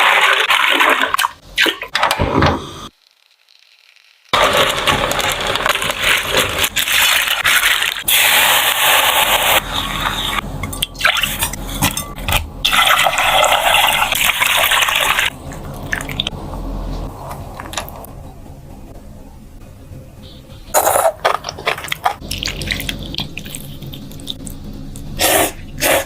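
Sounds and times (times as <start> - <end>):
liquid pouring and splashing: 0.0 - 1.9, 4.4 - 10.4, 12.6 - 16.3, 21.2 - 24.6.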